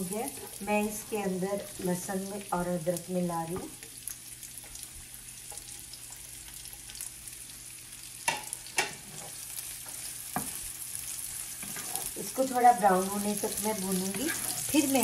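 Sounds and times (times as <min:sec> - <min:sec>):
garlic sizzling in hot oil: 0:00.0 - 0:15.0
wooden spatula stirring in pan: 0:08.3 - 0:15.0.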